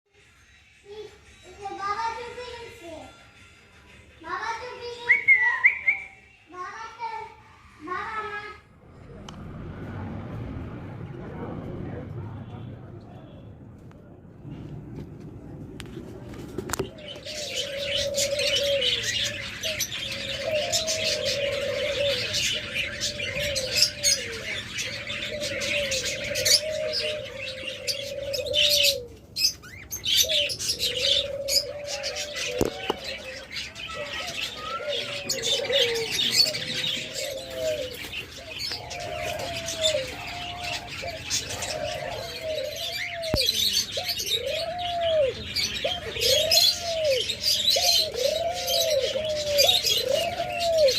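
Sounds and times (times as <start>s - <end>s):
small cage birds chirping: 0.2s - 8.5s, 16.4s - 50.9s
doves cooing: 16.0s - 50.9s.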